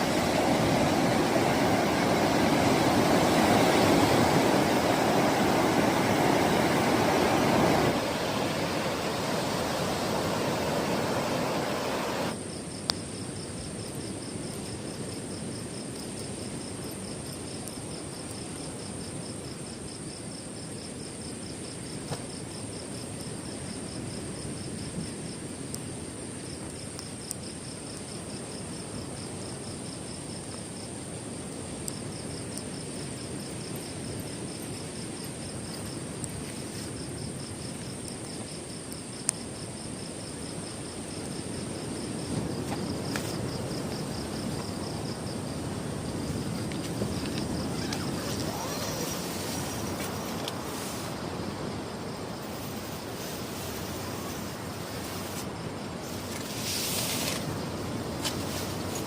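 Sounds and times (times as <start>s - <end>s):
surf and wind rushing: 0.0s - 20.0s, 28.0s - 59.0s
insect high continuous whine: 0.0s - 59.0s
insect fast pulsing trill: 42.8s - 58.8s.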